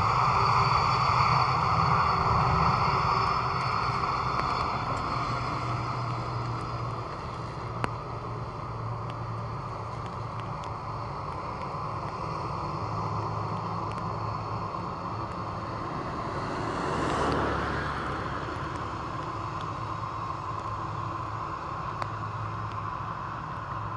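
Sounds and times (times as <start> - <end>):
jet engines rumbling and whining: 0.0 - 23.9.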